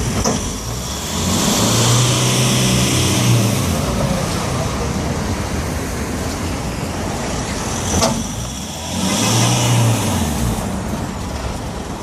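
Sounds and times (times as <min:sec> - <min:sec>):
truck engine revving: 0:00.0 - 0:05.4, 0:07.2 - 0:11.3.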